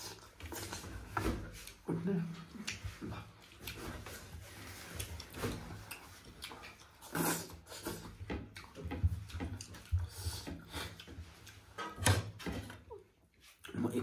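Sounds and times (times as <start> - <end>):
person chewing and smacking: 0.0 - 14.0.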